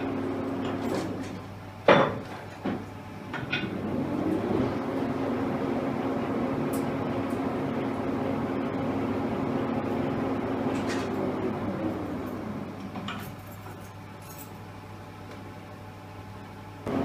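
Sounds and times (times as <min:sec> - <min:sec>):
lathe motor humming: 0:03.4 - 0:12.9.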